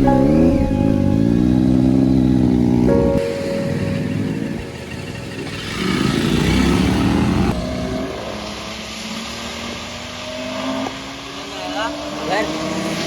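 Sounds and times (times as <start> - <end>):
motorcycle engine revving: 4.2 - 7.6.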